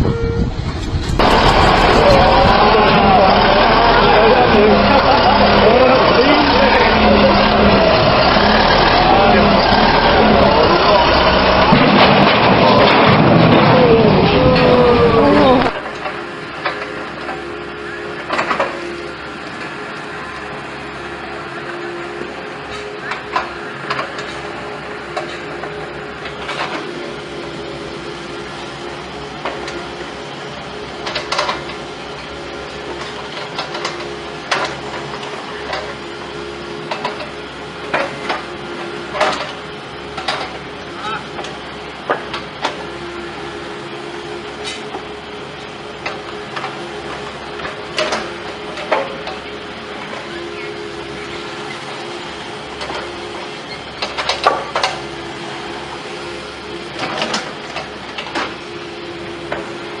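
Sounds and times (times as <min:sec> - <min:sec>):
machine humming: 0:00.0 - 0:16.3
machinery humming: 0:00.0 - 1:00.0.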